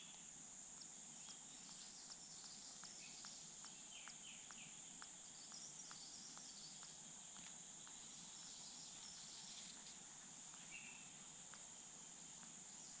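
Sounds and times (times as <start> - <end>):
faint chirps: 0.0 - 13.0
soft ticks: 0.0 - 13.0.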